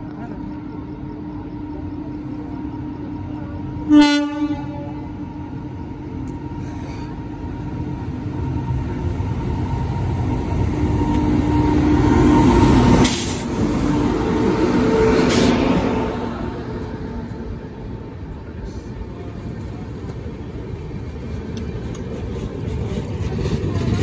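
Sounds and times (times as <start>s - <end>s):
locomotive rumbling and humming: 0.0s - 24.0s
train coaches rolling by: 0.0s - 24.0s
clatter of train wheels: 12.6s - 13.9s, 19.6s - 24.0s.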